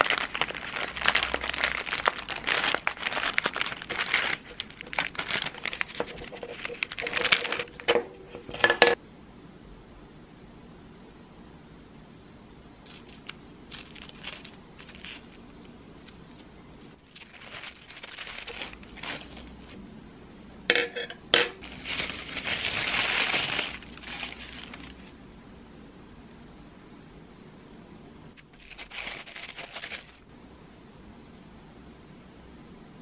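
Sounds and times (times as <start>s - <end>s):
rustling: 0.0s - 8.7s, 12.8s - 19.8s, 21.5s - 25.2s, 28.4s - 30.3s.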